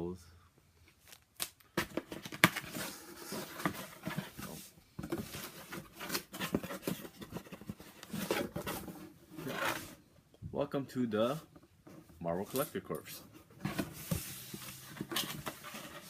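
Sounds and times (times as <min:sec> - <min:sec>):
paper rustling and crinkling: 0:12.3 - 0:16.0.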